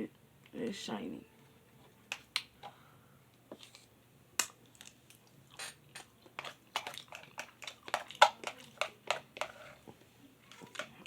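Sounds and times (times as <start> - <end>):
person chewing noodles: 4.6 - 8.8.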